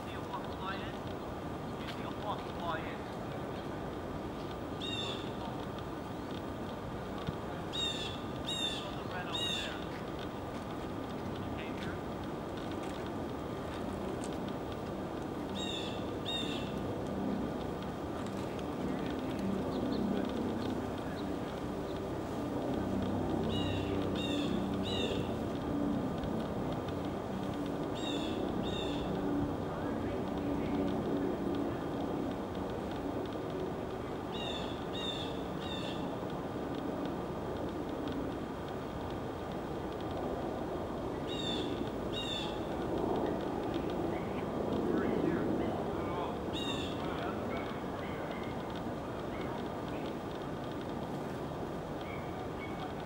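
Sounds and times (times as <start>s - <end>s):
low background noise: 0.0s - 53.0s
steady low hum: 0.0s - 53.0s
small birds calling: 4.7s - 5.6s, 7.7s - 10.1s, 15.5s - 16.9s, 23.3s - 25.4s, 27.8s - 29.2s, 34.0s - 36.1s, 41.1s - 50.2s, 52.0s - 53.0s
bird calling in harsh notes: 4.8s - 5.4s, 7.7s - 9.9s, 41.3s - 42.6s, 46.5s - 47.0s.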